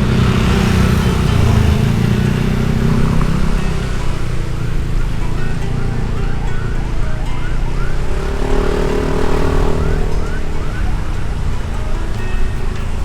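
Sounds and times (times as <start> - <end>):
motorbike engine rumble: 0.0 - 13.0
siren yelping: 2.9 - 12.9.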